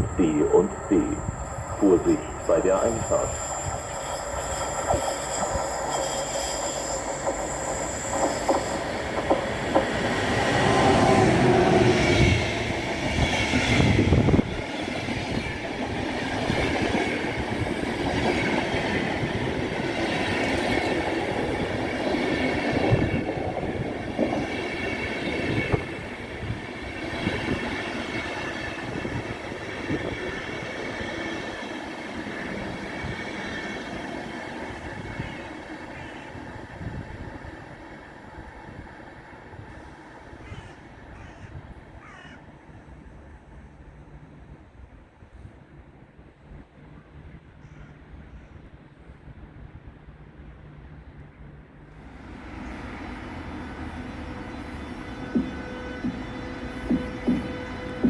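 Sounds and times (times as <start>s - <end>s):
wheels and brakes squealing: 2.2s - 10.8s
train wheels clacking over rail joints: 7.2s - 10.3s, 55.2s - 58.0s.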